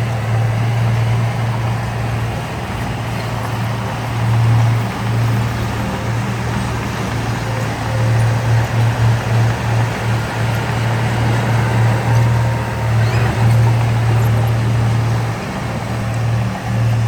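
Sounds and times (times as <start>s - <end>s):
heavy machinery diesel engine: 0.0s - 17.0s.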